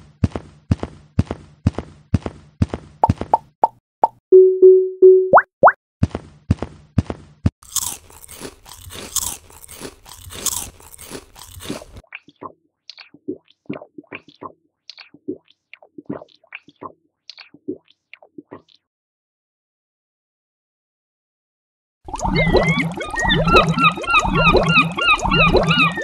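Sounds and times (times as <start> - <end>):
crunching: 7.6 - 12.0
chewing noises: 7.6 - 15.2.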